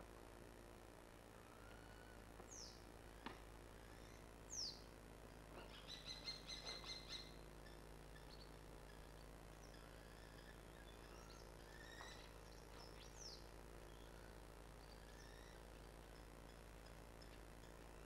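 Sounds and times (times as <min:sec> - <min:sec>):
bird chirps: 0:05.6 - 0:18.0.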